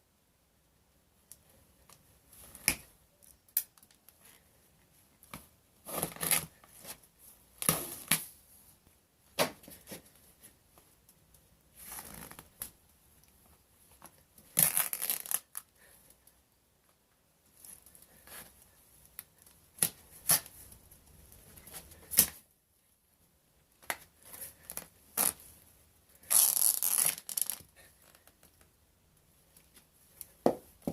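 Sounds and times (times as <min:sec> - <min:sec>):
sneaker tearing and scraping: 0:26.2 - 0:27.6.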